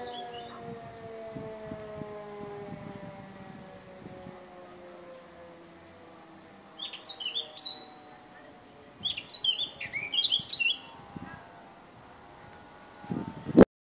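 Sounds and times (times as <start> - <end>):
songbird chirping: 0.0 - 13.1.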